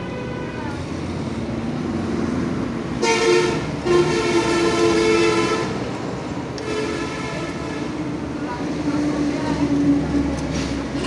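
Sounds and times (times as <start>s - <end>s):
two-tone horn blasts: 3.0s - 5.9s, 6.6s - 7.9s.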